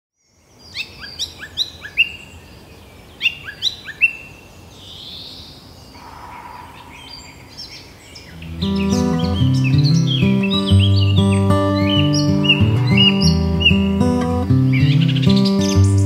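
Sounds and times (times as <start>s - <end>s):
birds chirping sharply: 5.0s - 16.0s.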